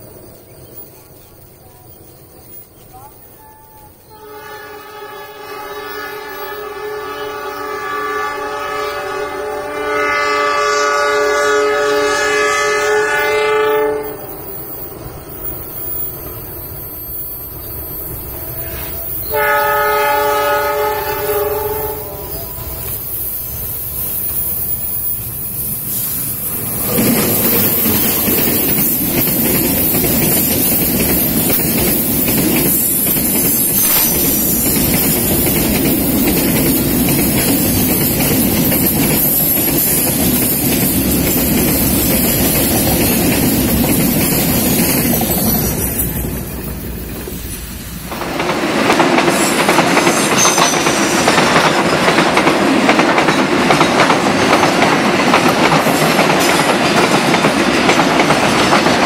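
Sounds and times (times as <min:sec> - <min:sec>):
diesel locomotives passing: 0:00.0 - 0:59.0
wheel clatter over rail joints: 0:22.3 - 0:59.0.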